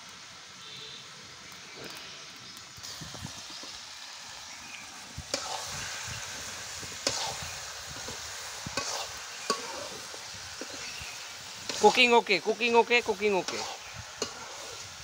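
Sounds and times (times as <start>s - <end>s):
curry sizzling in pan: 0.0s - 15.0s
metal spatula scraping pan: 8.8s - 10.9s, 13.4s - 14.9s.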